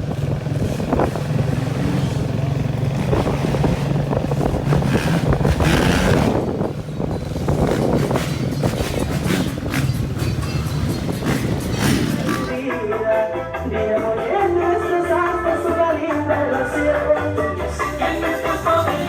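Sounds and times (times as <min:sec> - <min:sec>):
vehicle engine humming: 0:00.0 - 0:12.7, 0:18.0 - 0:19.0.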